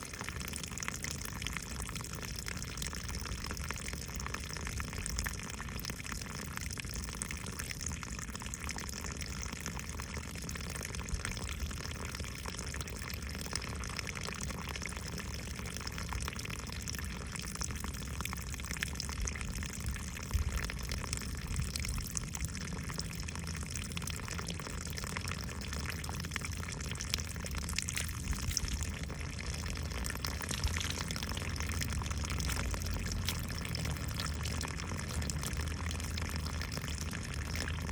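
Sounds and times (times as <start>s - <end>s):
water running: 27.1s - 36.6s.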